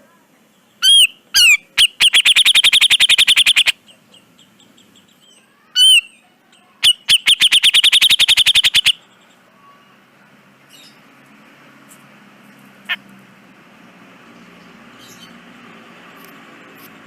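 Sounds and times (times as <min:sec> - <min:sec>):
bulbul singing with rattling trill: 0:00.7 - 0:09.5.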